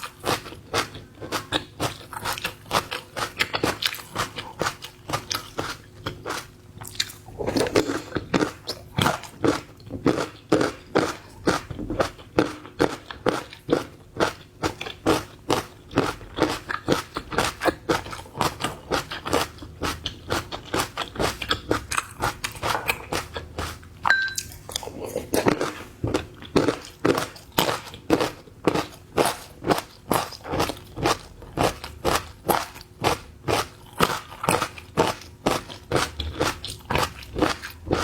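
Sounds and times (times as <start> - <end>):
chewing and crunching: 0.0 - 38.0.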